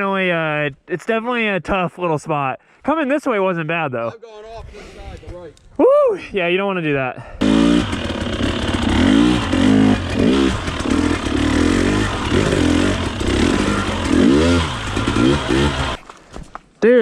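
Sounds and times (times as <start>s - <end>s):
dirt bike engine revving: 7.4s - 16.0s.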